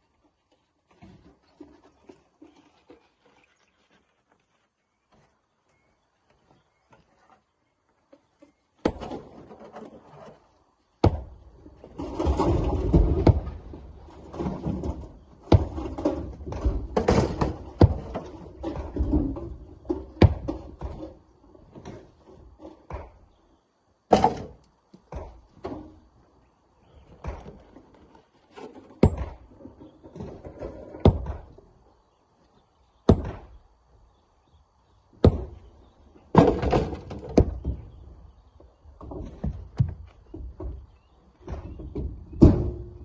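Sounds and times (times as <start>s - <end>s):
rocks knocking and thudding: 8.8s - 23.4s, 24.0s - 26.2s, 26.9s - 28.0s, 28.6s - 31.8s, 33.0s - 33.6s, 35.1s - 43.0s
short rocks rattle: 8.8s - 23.4s, 26.8s - 31.8s, 35.2s - 43.0s.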